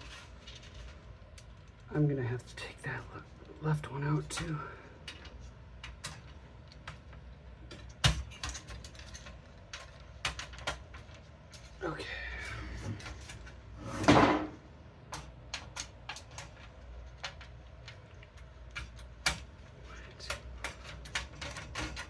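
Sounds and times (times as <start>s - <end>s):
clicks and knocks of computer hardware: 4.3s - 11.7s, 12.9s - 22.0s.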